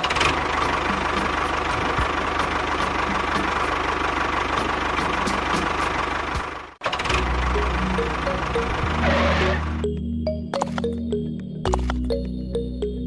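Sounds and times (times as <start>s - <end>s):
small engine running: 0.0s - 9.8s.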